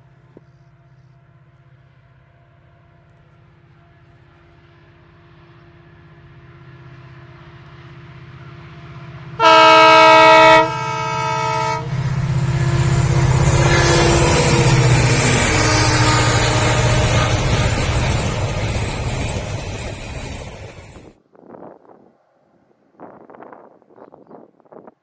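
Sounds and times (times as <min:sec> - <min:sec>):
train rumble: 0:00.8 - 0:21.2
train horn blast: 0:09.4 - 0:21.1.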